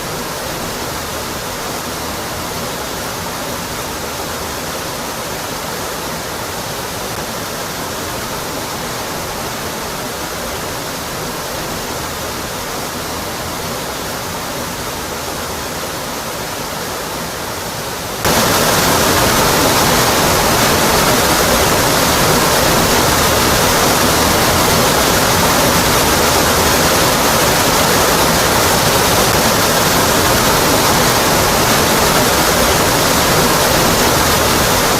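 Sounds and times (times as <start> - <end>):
waterfall pouring: 18.2 - 34.9.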